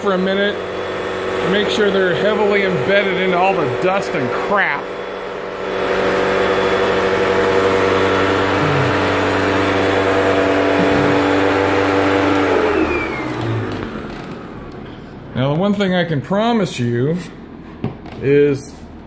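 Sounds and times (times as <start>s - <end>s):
vacuum cleaner motor spinning down: 0.0s - 14.8s.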